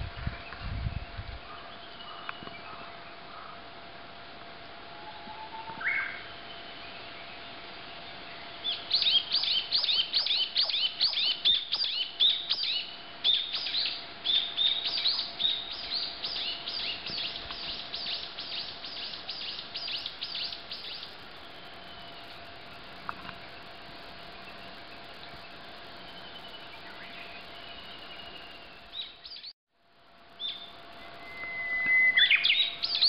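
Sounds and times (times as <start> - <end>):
songbird whistling: 8.6 - 22.2, 30.4 - 33.0.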